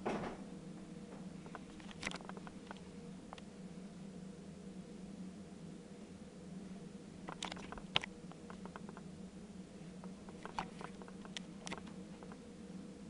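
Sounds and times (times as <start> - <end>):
dishwasher humming: 0.0 - 3.6, 7.2 - 9.2, 9.8 - 12.5
light clicks and patter: 1.1 - 3.5, 7.2 - 9.1, 10.0 - 12.4.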